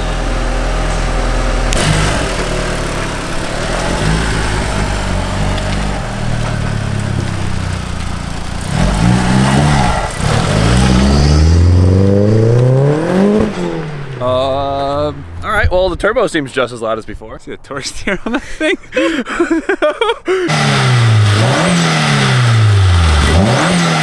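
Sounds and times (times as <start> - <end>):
turbocharged car engine revving: 0.0 - 15.5, 20.5 - 24.0.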